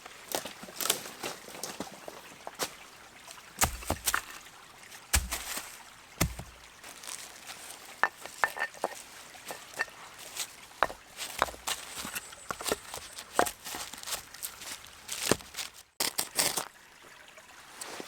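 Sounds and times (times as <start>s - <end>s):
stream trickling: 0.0s - 18.0s
heavy thumps: 5.2s - 5.6s, 6.2s - 6.6s.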